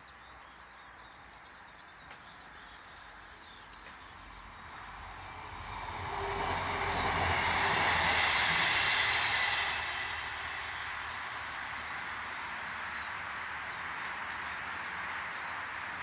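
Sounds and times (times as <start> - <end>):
vehicle passing by: 4.6 - 13.6.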